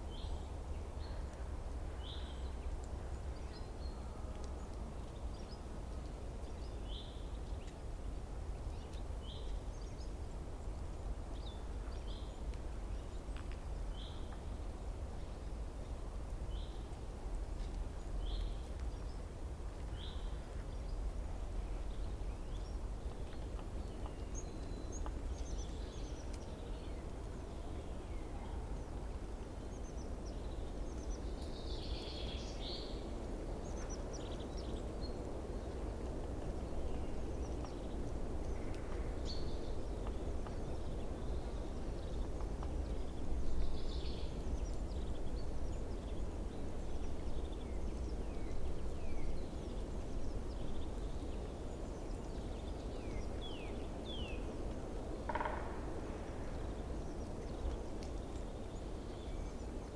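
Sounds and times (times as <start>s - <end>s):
small birds chirping: 21.8s - 54.6s.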